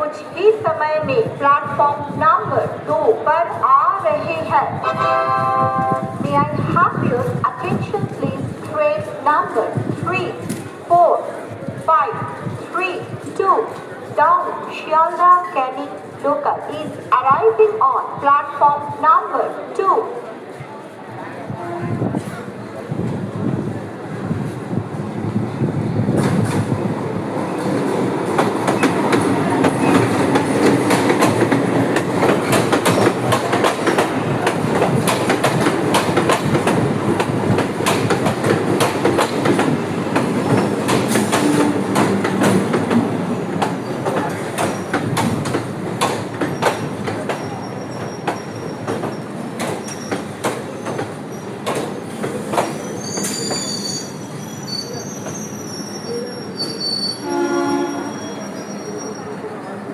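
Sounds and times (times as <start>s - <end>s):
train wheels squealing: 46.5s - 51.6s, 52.6s - 59.9s.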